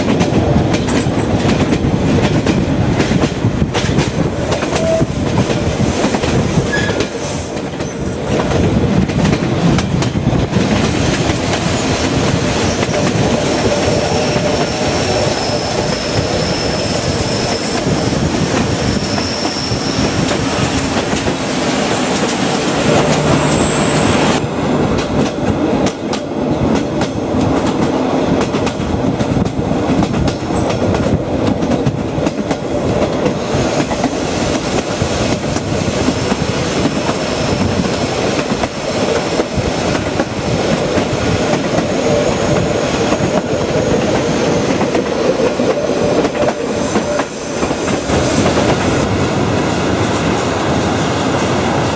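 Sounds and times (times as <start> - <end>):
train rumbling: 0.0 - 51.9
faint high wheel squeal: 18.8 - 20.2.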